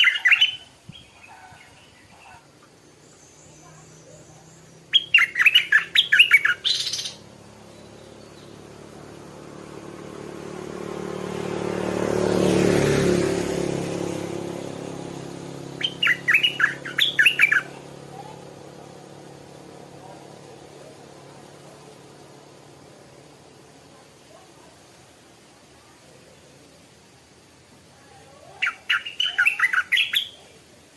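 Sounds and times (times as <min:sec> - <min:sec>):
bird chattering: 0:00.0 - 0:09.1, 0:15.7 - 0:21.8, 0:28.6 - 0:30.6
passing vehicle engine: 0:00.0 - 0:30.2.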